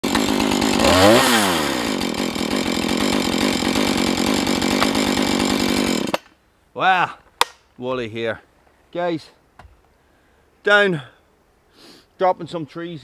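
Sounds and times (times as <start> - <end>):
chainsaw running: 0.0 - 6.2.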